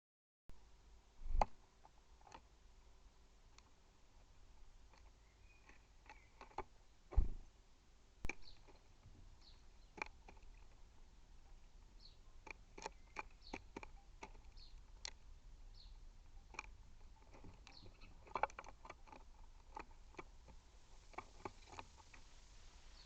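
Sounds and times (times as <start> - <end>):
bird pecking seed on feeder: 4.9 - 6.7, 8.3 - 10.8, 11.5 - 15.3, 16.3 - 22.4
faint high bird chirps: 5.0 - 6.9, 8.3 - 8.8, 9.4 - 10.0, 11.9 - 15.1, 17.6 - 18.4, 22.8 - 23.0.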